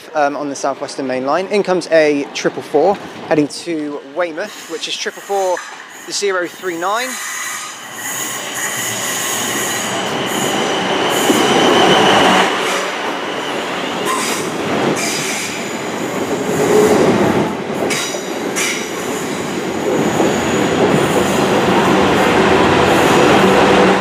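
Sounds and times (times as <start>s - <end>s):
electric train slowing: 4.5s - 24.0s
high-pitched wheel squeal: 7.1s - 14.4s.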